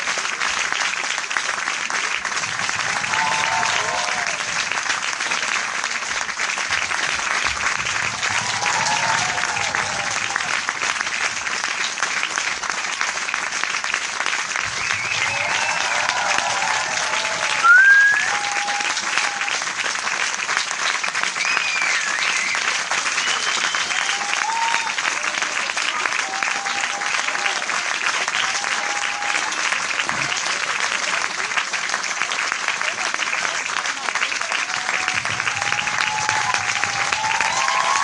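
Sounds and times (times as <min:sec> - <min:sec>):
audience applauding: 0:00.0 - 0:38.0
short rising whistle: 0:17.6 - 0:18.5.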